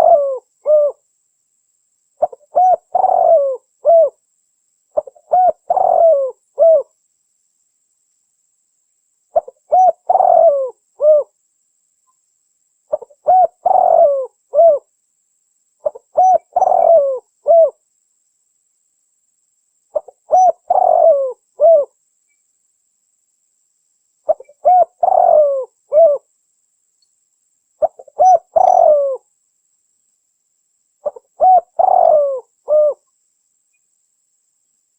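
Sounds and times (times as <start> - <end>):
dove cooing: 0.0 - 1.0, 2.2 - 4.2, 5.0 - 6.9, 9.4 - 11.4, 12.9 - 14.9, 15.8 - 17.8, 19.9 - 22.0, 24.3 - 26.3, 27.8 - 29.3, 31.0 - 33.0.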